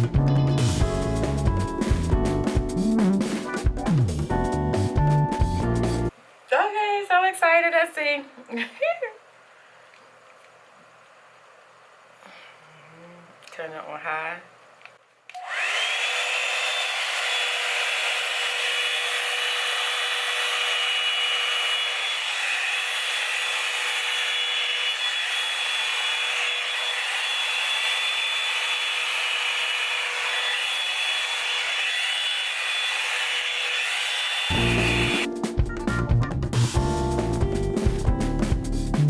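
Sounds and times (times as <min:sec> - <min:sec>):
hair dryer motor whining: 0:15.3 - 0:35.3.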